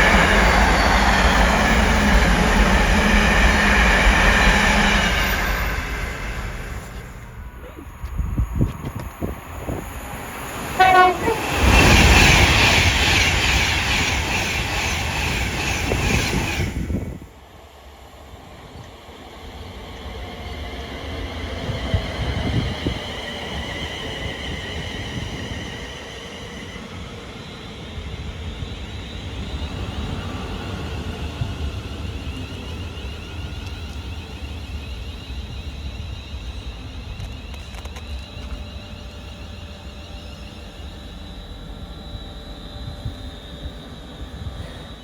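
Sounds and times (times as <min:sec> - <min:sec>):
train high whine: 0:00.0 - 0:45.0
train passing with wheel rattle: 0:00.0 - 0:45.0
train horn blast: 0:10.7 - 0:12.2.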